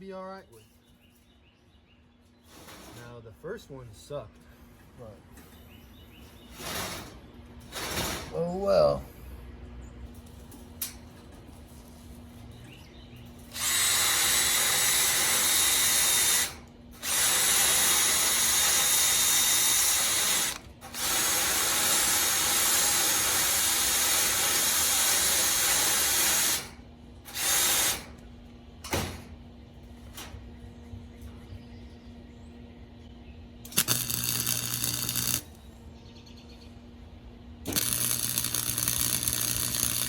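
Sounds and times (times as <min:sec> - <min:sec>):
arc welding crackling hiss: 0:33.7 - 0:35.6, 0:37.7 - 0:40.0.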